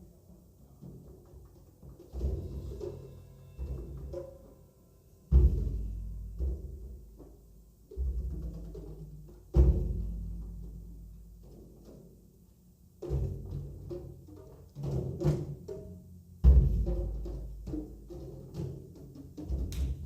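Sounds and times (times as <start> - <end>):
taiko drum strikes: 5.3 - 11.6, 14.8 - 20.0.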